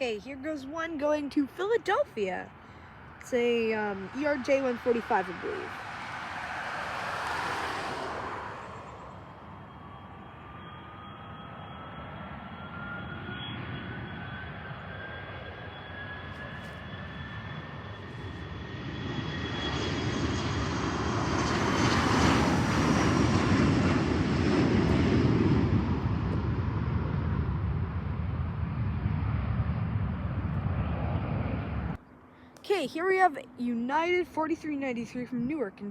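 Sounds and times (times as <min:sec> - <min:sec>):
jet rumble: 0:00.0 - 0:32.0
jet engines whining: 0:00.0 - 0:32.3.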